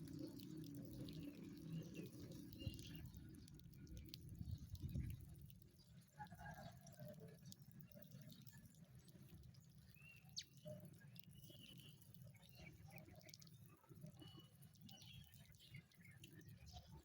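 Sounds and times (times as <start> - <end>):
soft bird chirps: 9.8 - 13.2.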